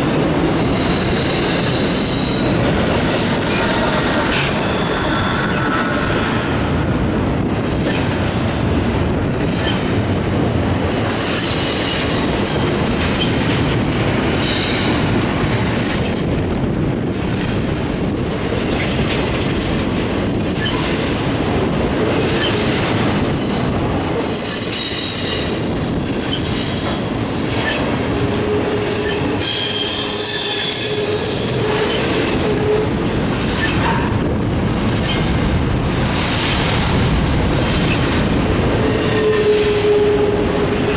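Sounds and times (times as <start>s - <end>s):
freight train rolling past: 0.0s - 40.9s
high-pitched wheel squeal: 0.6s - 2.6s, 22.4s - 34.1s.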